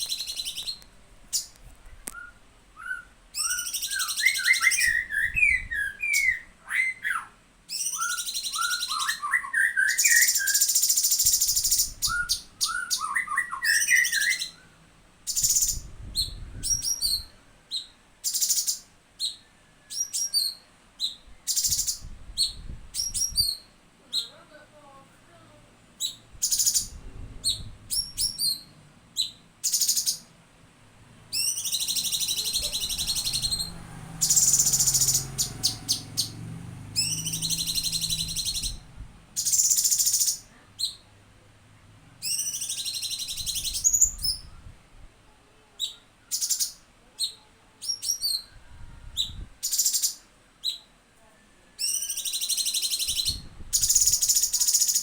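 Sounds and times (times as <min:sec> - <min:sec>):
sharp bird chips: 0:00.0 - 0:01.5, 0:31.4 - 0:36.3, 0:39.4 - 0:40.4
bird trilling song: 0:00.0 - 0:24.4, 0:26.0 - 0:30.3, 0:31.3 - 0:41.1, 0:42.2 - 0:44.6, 0:45.8 - 0:50.9, 0:51.8 - 0:55.0.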